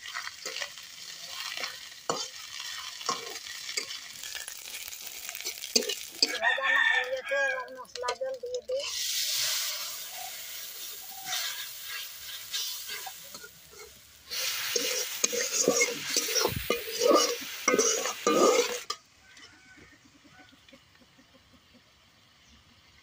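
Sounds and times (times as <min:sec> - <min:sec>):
paste sizzling in hot oil: 0:00.0 - 0:06.6, 0:07.2 - 0:19.0
spatula scraping wok: 0:00.0 - 0:06.6, 0:07.2 - 0:19.5.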